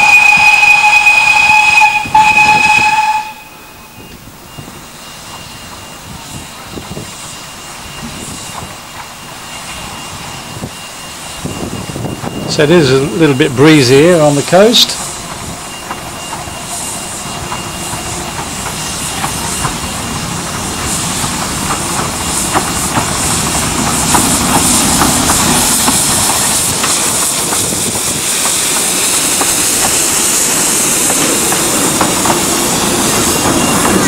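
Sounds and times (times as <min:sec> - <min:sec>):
train hissing: 0:00.0 - 0:34.0
wheels clicking over rail joints: 0:14.8 - 0:30.2, 0:30.9 - 0:34.0
wind buffeting microphone: 0:19.1 - 0:34.0.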